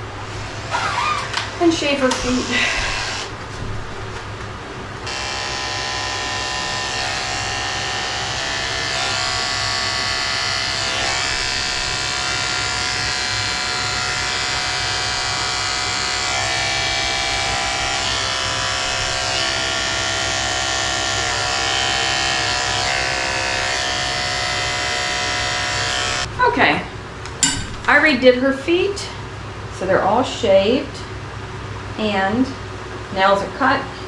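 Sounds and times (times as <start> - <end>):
electric clippers running: 0.3 - 3.4, 5.0 - 26.3.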